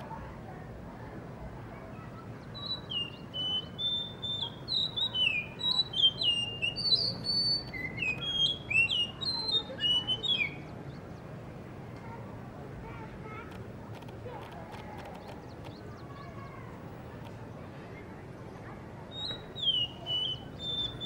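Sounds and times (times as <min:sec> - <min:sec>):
thrush whistling song: 0:02.5 - 0:10.7, 0:19.1 - 0:21.0.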